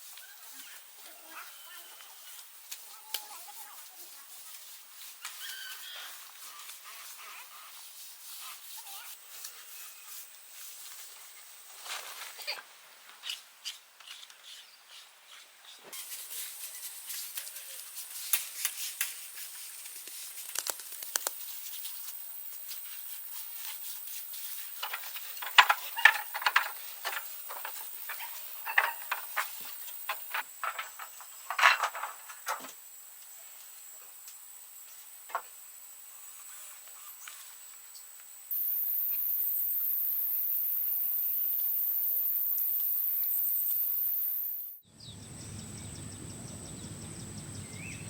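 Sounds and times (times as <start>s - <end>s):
faint steady high hiss: 0.0s - 14.0s, 15.8s - 48.0s
tools tapping and scraping: 24.6s - 32.8s.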